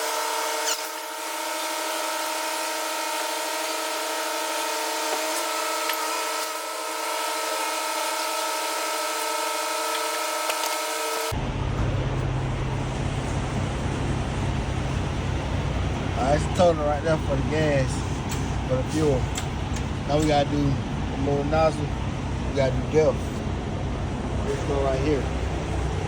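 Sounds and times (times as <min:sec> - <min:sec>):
fuel pump nozzle whining: 0:00.0 - 0:26.0.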